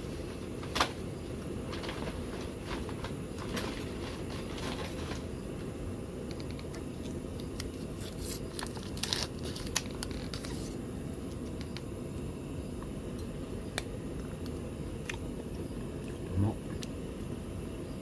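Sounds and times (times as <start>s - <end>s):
clicks and crinkles of handling: 1.7s - 5.3s, 6.2s - 11.9s.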